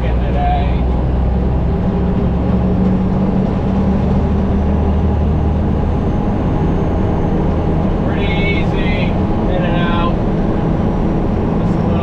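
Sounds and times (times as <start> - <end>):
diesel truck engine running: 0.0 - 12.0
road noise: 0.0 - 12.0.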